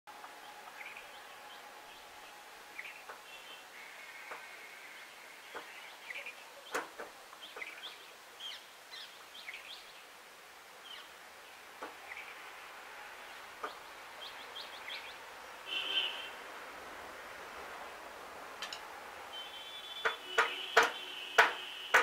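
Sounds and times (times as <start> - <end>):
outdoor background noise: 0.1 - 22.0
small birds chirping: 0.4 - 10.2, 10.8 - 16.3.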